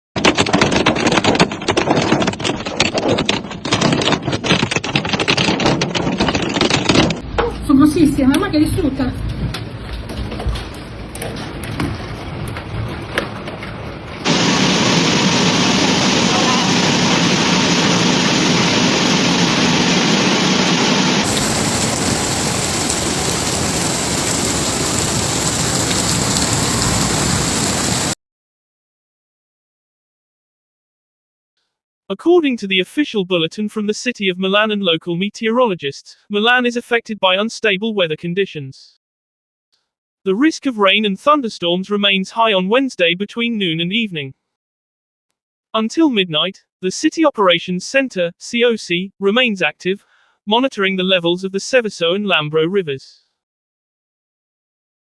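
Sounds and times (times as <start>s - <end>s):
heavy rain pouring: 14.3s - 28.2s
hail clattering on hard surfaces: 21.3s - 28.2s.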